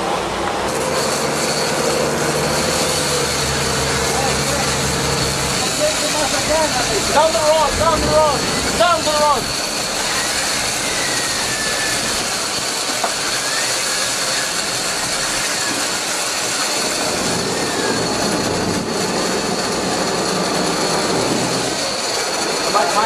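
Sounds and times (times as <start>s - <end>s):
boat engine running: 0.0s - 23.0s
rushing water: 0.0s - 23.0s
thin high whine: 0.0s - 23.0s
wind noise: 5.7s - 21.9s.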